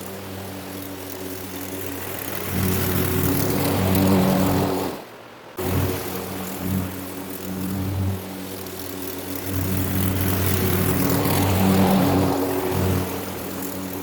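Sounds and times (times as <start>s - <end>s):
gas lawn mower cutting grass: 0.0s - 14.0s.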